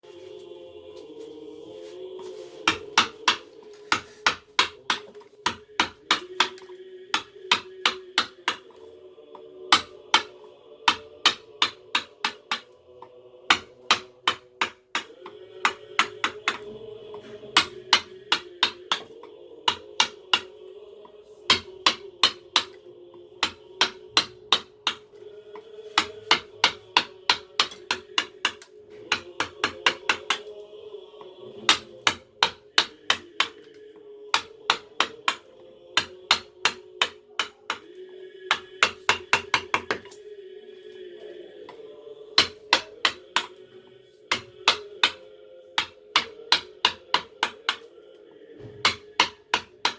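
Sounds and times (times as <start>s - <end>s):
mallet tapping chisel into wood: 2.7s - 8.8s, 9.7s - 12.7s, 13.5s - 20.6s, 21.5s - 22.8s, 23.4s - 25.2s, 26.0s - 30.5s, 31.6s - 33.7s, 34.3s - 37.9s, 38.5s - 40.2s, 42.4s - 43.6s, 44.3s - 45.2s, 45.8s - 47.9s, 48.6s - 49.9s.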